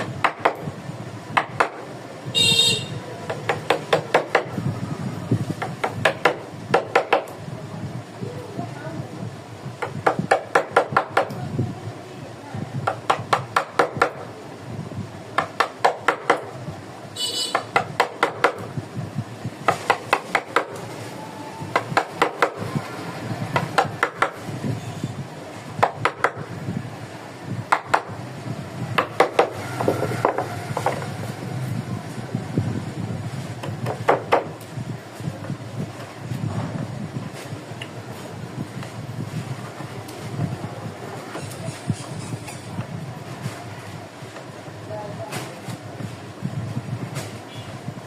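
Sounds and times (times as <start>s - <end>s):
mallet striking chisel into wood: 0.0s - 0.7s, 1.3s - 1.9s, 3.2s - 4.6s, 5.6s - 7.4s, 9.8s - 11.4s, 12.8s - 14.3s, 15.3s - 16.6s, 17.5s - 18.8s, 19.6s - 20.8s, 21.7s - 22.7s, 23.5s - 24.5s, 25.8s - 26.5s, 27.7s - 28.2s, 28.9s - 31.1s, 33.6s - 34.7s
high-pitched squeak: 41.4s - 42.7s.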